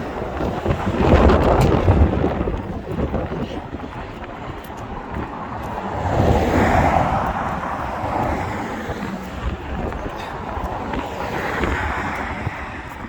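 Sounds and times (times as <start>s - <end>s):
low rumble of moving traffic: 0.0s - 13.0s
wind buffeting microphone: 0.0s - 13.0s.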